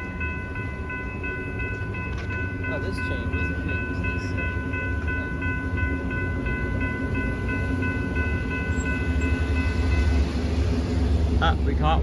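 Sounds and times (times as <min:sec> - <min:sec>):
crossing warning bell ringing: 0:00.0 - 0:12.0
light rail train rumble: 0:00.0 - 0:12.0.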